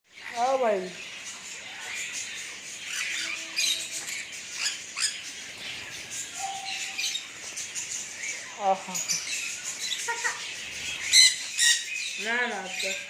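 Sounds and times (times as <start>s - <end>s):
birds chirping and calling: 0.1s - 13.0s
whistled notes: 6.4s - 7.0s.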